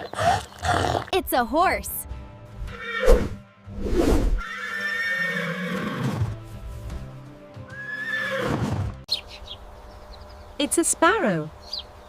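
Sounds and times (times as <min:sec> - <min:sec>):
background music: 0:01.0 - 0:09.1
horse neighing: 0:02.7 - 0:03.1, 0:04.4 - 0:06.3, 0:07.7 - 0:08.8.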